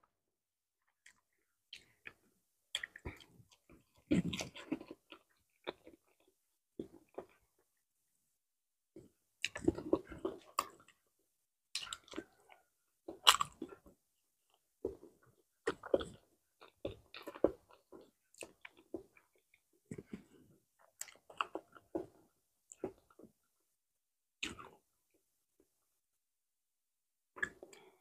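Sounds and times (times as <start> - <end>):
person chewing: 1.0 - 7.4, 9.4 - 11.0, 11.7 - 13.9, 14.5 - 23.2.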